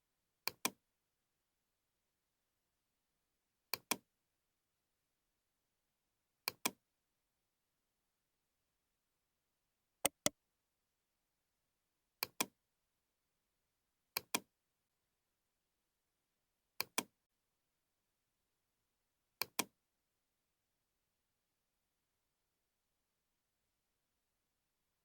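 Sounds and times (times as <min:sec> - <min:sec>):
mouse button double-clicking: 0:10.1 - 0:10.3.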